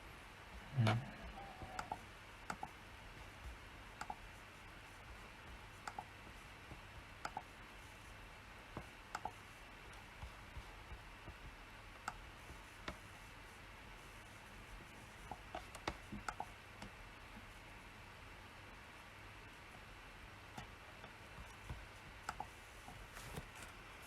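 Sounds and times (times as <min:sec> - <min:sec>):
mouse and keyboard clicks: 0:04.0 - 0:04.2.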